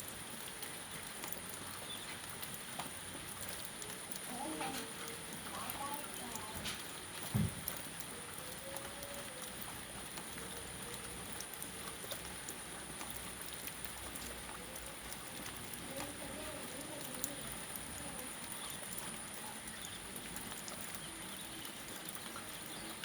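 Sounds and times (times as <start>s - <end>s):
rain falling: 0.0s - 23.0s
raindrops ticking on a surface: 0.0s - 23.0s
faint wavering voices: 8.0s - 11.3s.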